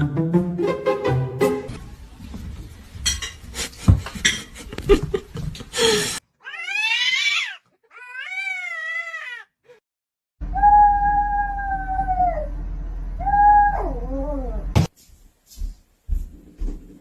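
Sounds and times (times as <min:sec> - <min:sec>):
cat meowing: 0:06.4 - 0:09.5.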